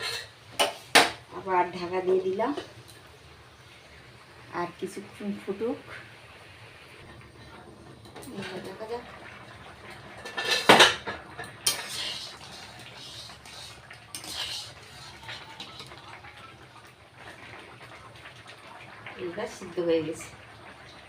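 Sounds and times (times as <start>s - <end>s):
metal utensils clattering on pot: 0.0s - 1.2s, 9.9s - 16.1s.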